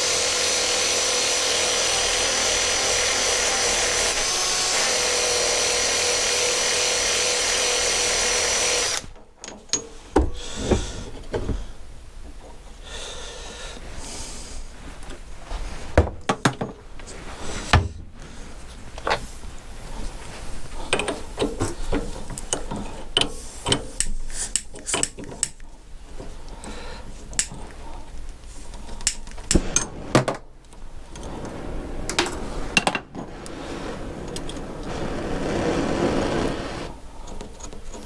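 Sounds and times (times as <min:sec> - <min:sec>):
rising noise: 0:31.2 - 0:37.0.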